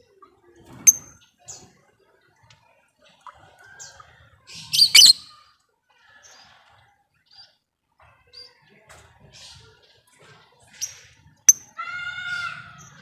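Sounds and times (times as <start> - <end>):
lovebird chirping: 0.9 - 1.1, 4.7 - 5.3
lovebird screechy chatter: 4.7 - 5.3.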